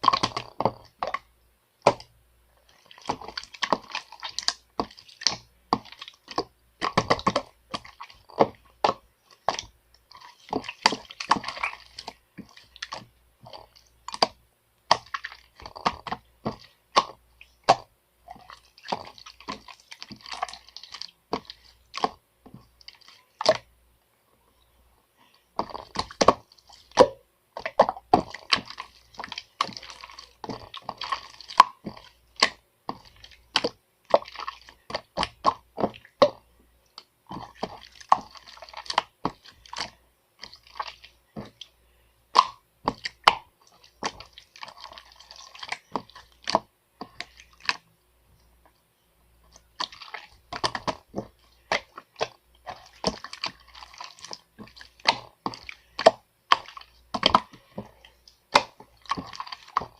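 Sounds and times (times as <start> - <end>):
moist crackly clicks and taps: 24.6 - 59.9.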